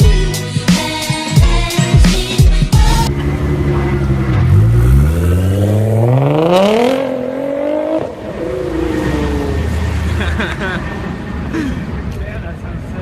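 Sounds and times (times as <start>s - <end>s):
car engine revving: 3.0s - 10.8s.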